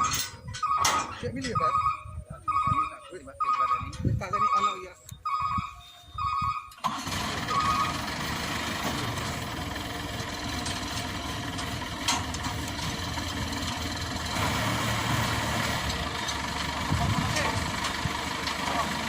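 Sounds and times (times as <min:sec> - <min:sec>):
diesel engine running: 0:05.5 - 0:19.0.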